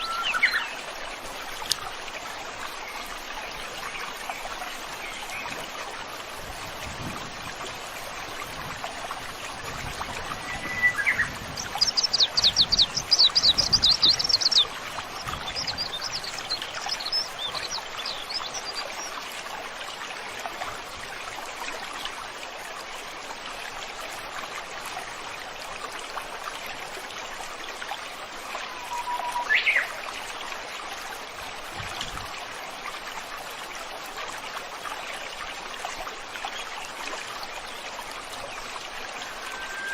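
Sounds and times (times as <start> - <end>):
rising whistled call: 0.0 - 0.8, 10.4 - 11.3, 28.7 - 29.9, 39.2 - 39.9
songbirds singing: 0.0 - 0.9, 9.6 - 19.2, 28.7 - 30.0, 38.6 - 39.9
stream flowing: 0.0 - 39.9
high down-sweeping bird notes: 39.2 - 39.9.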